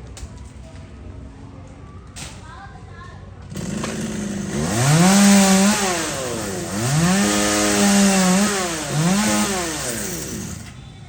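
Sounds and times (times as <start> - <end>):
chainsaw revving: 3.5 - 10.7.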